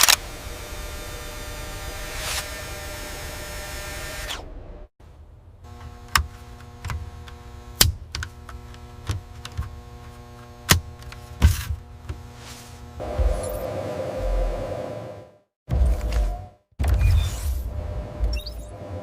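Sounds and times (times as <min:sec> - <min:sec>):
mechanical clicks and clanks: 0:00.0 - 0:00.2
factory machinery hum: 0:05.6 - 0:16.0.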